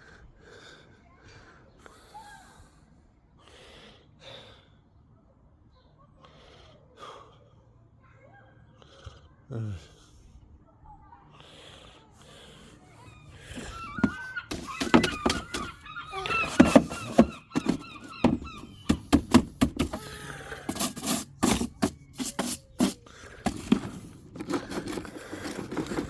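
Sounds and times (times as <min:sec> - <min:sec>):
gulls calling: 0:12.5 - 0:24.0
sharp knocks and clatters: 0:14.0 - 0:20.1.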